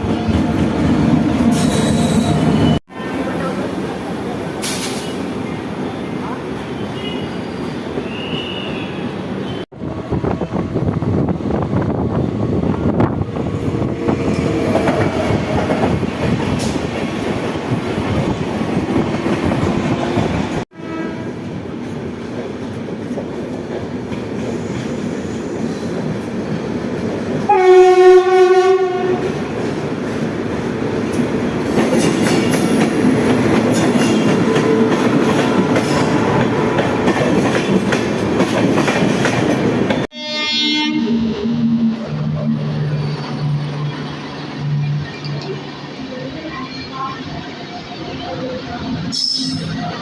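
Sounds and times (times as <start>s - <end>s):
train wheel and rail noise: 0.0s - 50.0s
train horn blast: 20.7s - 21.4s, 27.5s - 29.4s, 40.1s - 42.6s.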